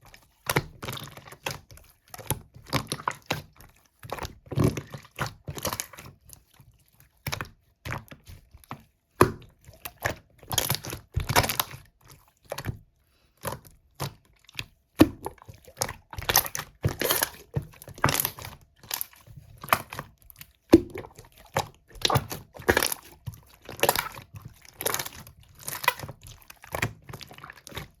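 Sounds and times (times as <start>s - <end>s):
slime squishing by hand: 0.0s - 28.0s.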